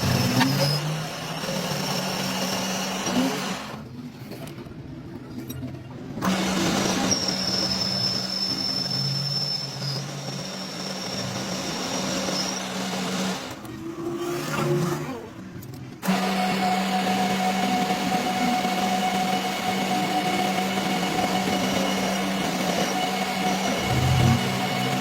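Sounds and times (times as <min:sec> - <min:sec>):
machine tool running: 0:16.0 - 0:25.0.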